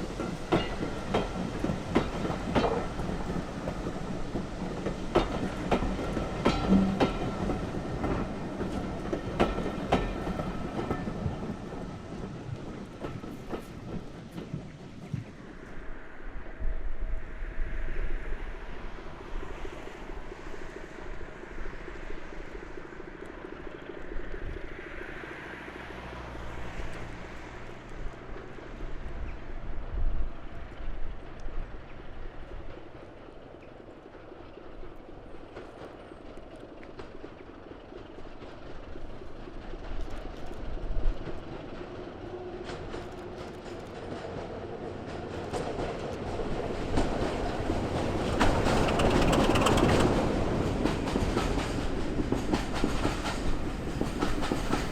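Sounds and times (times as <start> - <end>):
train wheels clattering: 0.0 - 15.4, 35.4 - 54.9.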